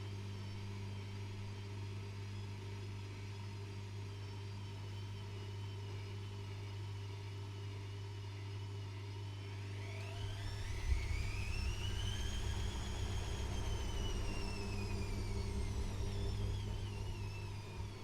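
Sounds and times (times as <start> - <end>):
motor rising whine: 9.7 - 18.0
washing machine humming: 9.8 - 18.0.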